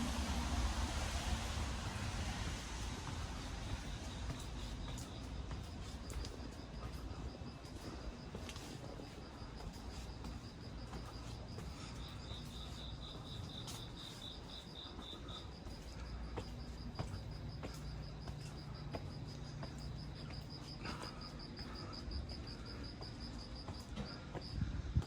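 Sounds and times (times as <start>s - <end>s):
light rain: 0.0s - 4.8s
crickets chirping: 0.0s - 25.0s.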